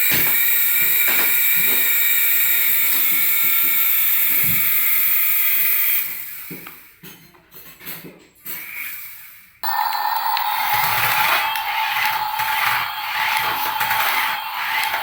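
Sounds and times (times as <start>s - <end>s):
toy aircraft motors whining: 9.6s - 15.0s.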